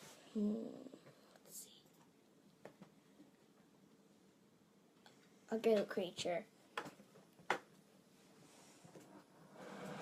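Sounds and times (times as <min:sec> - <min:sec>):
soft breathy hiss: 0:00.0 - 0:03.5, 0:08.1 - 0:10.0.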